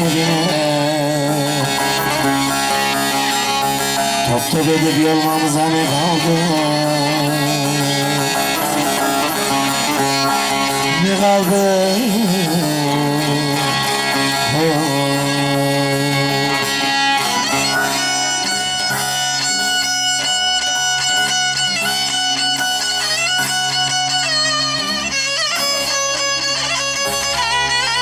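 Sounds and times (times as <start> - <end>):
high ornamented melody: 0.0 - 28.0.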